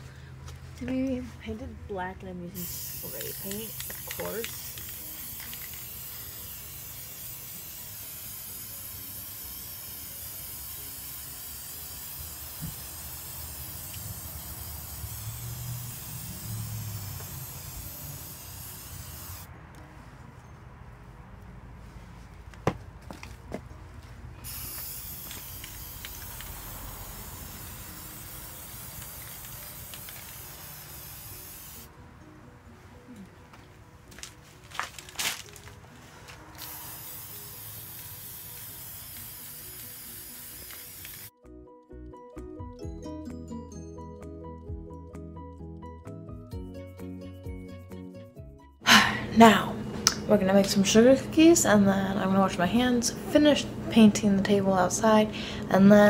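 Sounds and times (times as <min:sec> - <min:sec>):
spray paint can hissing: 0:02.6 - 0:19.5, 0:24.4 - 0:31.9, 0:36.5 - 0:41.3.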